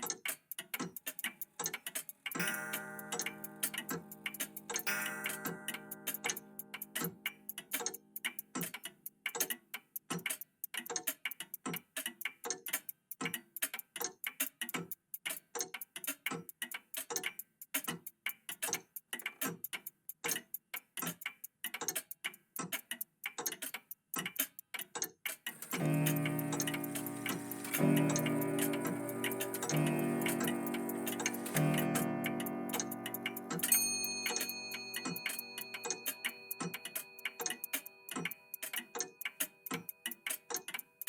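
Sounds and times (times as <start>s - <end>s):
clocks ticking: 0.0s - 41.0s
clock chime ringing: 4.8s - 6.1s, 25.6s - 37.7s.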